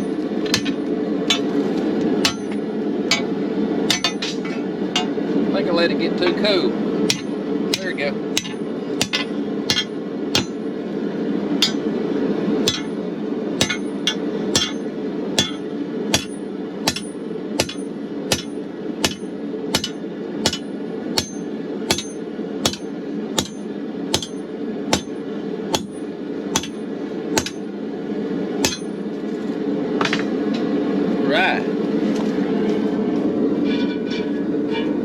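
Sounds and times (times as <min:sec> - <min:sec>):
hammer striking steel on anvil: 0:00.0 - 0:01.6, 0:02.2 - 0:05.2, 0:07.1 - 0:10.6, 0:11.6 - 0:11.9, 0:12.6 - 0:13.0, 0:13.6 - 0:26.8, 0:27.4 - 0:27.7, 0:28.6 - 0:29.0
gas forge burner roaring: 0:00.0 - 0:35.0.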